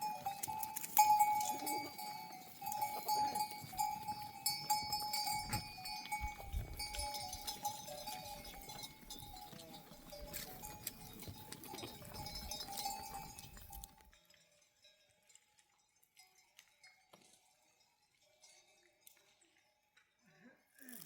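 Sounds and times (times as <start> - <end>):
sheep bells ringing: 0.0 - 21.0.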